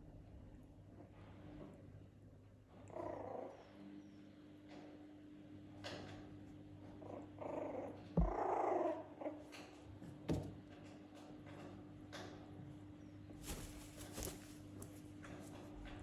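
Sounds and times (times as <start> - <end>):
puppy making rough sound: 7.2 - 9.1
thumps: 8.2 - 8.4.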